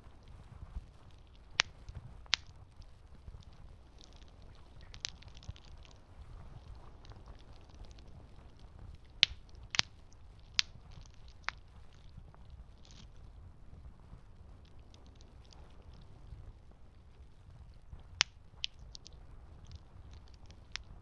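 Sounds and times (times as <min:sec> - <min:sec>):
campfire crackling and popping: 0:00.1 - 0:21.0.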